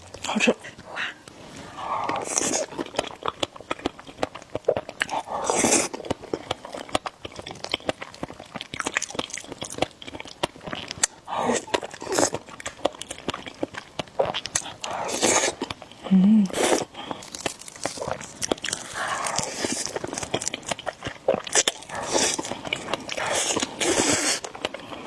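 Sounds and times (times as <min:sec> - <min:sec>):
chewing with wet mouth clicks: 0:02.0 - 0:16.0, 0:16.8 - 0:25.0
hissing mouth sounds: 0:23.2 - 0:24.5.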